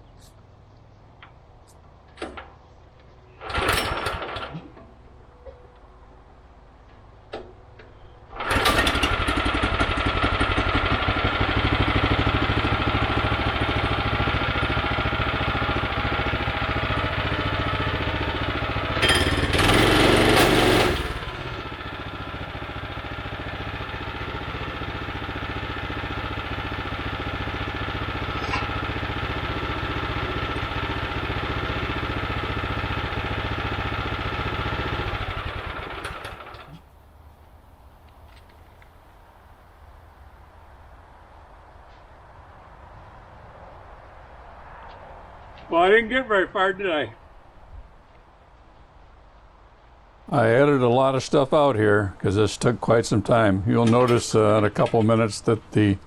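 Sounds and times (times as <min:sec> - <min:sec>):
small gasoline engine running: 0:08.3 - 0:36.9
short noises: 0:18.4 - 0:21.7, 0:28.1 - 0:31.2.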